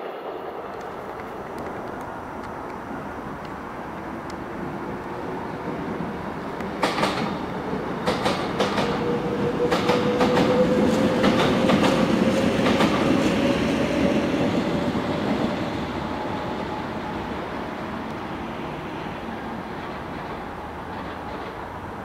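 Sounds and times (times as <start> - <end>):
wheels clicking over rail joints: 0.7 - 13.3, 19.0 - 22.0.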